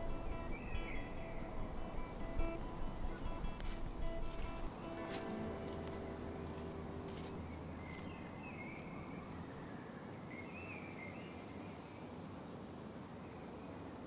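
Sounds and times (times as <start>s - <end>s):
music: 0.0s - 8.0s
small birds chirping: 0.0s - 9.6s
faint outdoor hush: 0.0s - 10.0s.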